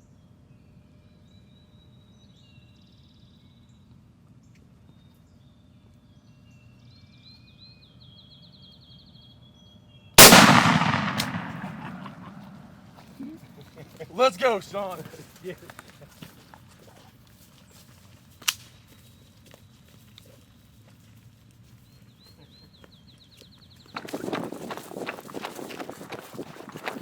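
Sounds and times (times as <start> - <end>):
shotgun blast with echo: 10.2 - 12.8.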